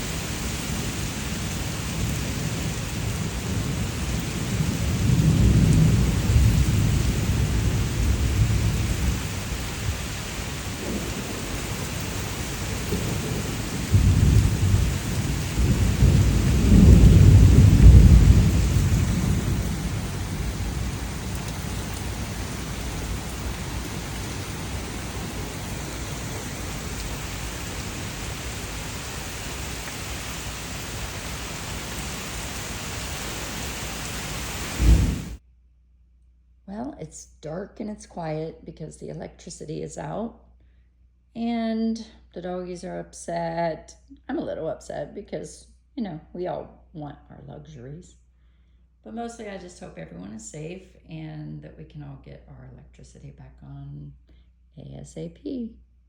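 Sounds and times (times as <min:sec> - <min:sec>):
deep rolls of thunder: 0:00.0 - 0:35.4
steady rain: 0:00.0 - 0:35.4.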